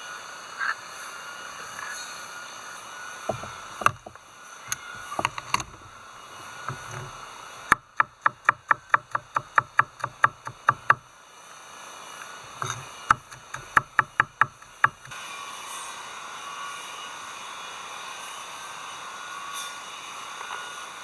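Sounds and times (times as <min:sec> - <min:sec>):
knife chopping on wooden board: 0:03.3 - 0:11.0, 0:12.5 - 0:15.2.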